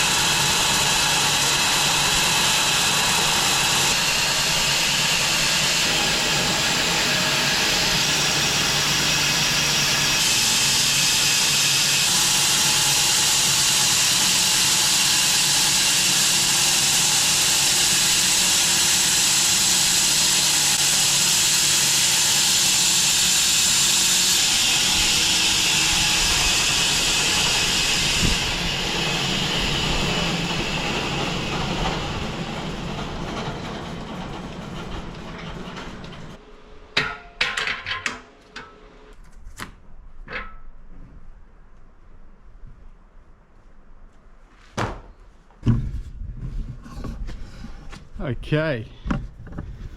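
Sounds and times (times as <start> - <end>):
low machine drone: 0.0 - 10.8, 23.8 - 36.8
bandsaw blade sawing log: 0.0 - 36.4.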